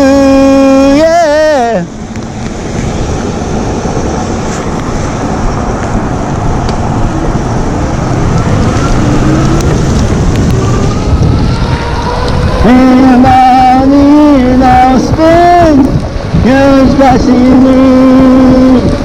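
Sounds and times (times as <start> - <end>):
tyres on wet road: 0.0 - 19.0
wind noise on microphone: 0.0 - 19.0
faint whine rising in pitch: 7.1 - 13.5.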